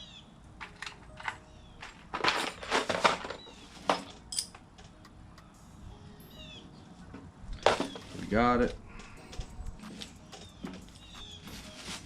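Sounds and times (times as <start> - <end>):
scraping and rustling: 0.6 - 4.3, 7.2 - 8.4, 9.8 - 12.0.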